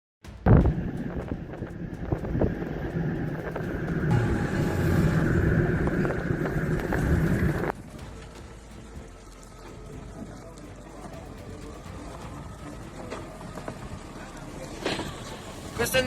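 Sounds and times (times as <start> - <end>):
wind noise on microphone: 0.4 - 8.3
vehicle rumble: 0.4 - 16.0.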